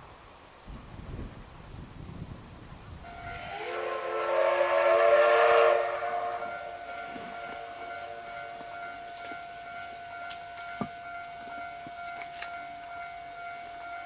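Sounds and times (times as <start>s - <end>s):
steam whistle blowing: 3.1s - 14.0s.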